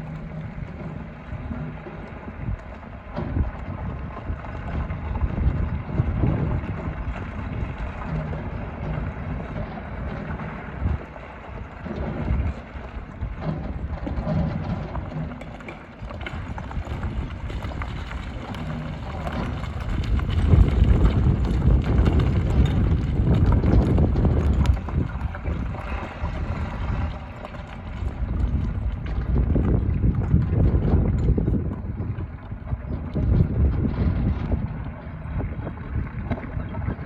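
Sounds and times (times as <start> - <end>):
stones knocking and scraping: 14.4 - 26.8.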